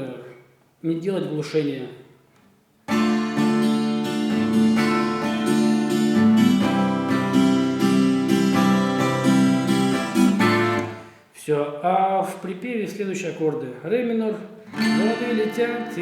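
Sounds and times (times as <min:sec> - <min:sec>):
guitar strumming chords: 0:02.9 - 0:11.2, 0:14.7 - 0:16.0.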